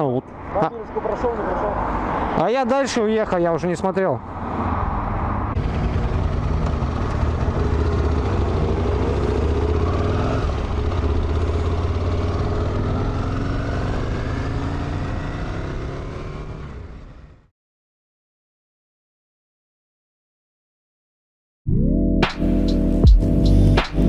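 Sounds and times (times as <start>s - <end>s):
motorcycle engine accelerating: 5.6s - 17.5s.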